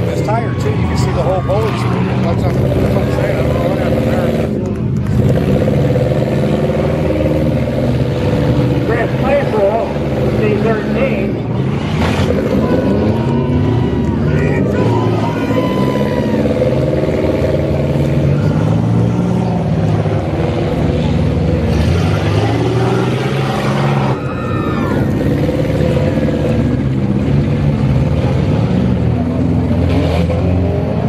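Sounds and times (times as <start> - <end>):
car engines revving: 0.0 - 31.0.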